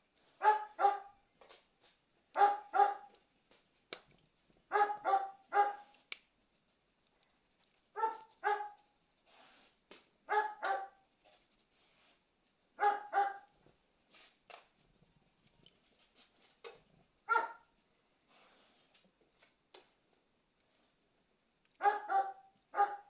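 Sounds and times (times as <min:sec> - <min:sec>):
dog barking: 0:00.4 - 0:01.2, 0:02.3 - 0:03.2, 0:04.7 - 0:06.0, 0:07.9 - 0:08.8, 0:10.3 - 0:11.0, 0:12.8 - 0:13.5, 0:17.2 - 0:17.7, 0:21.8 - 0:23.0
faint sharp clicks: 0:05.9 - 0:06.3.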